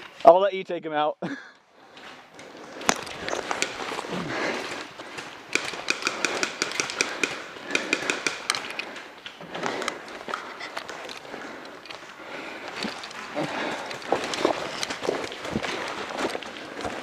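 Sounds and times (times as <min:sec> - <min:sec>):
rustling movement: 0:01.8 - 0:17.0
airsoft guns firing: 0:05.2 - 0:08.8.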